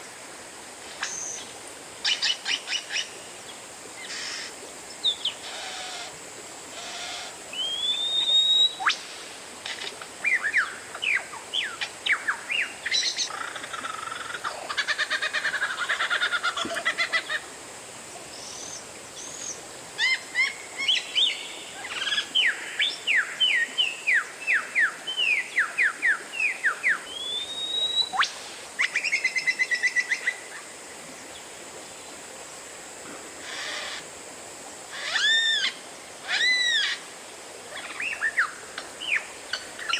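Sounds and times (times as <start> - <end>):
bird singing varied whistles: 7.6 - 8.9, 27.1 - 28.3.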